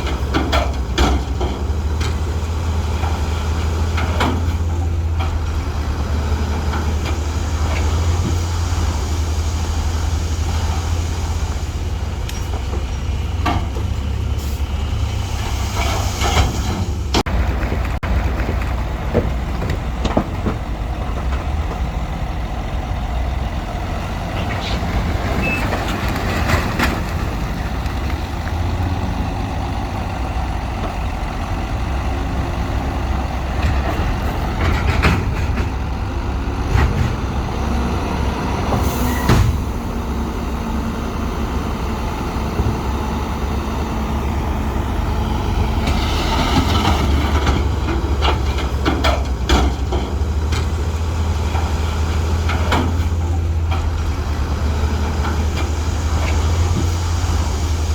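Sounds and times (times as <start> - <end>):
heavy diesel machinery running: 0.0 - 57.9
metal knocks and clanks: 33.5 - 35.9.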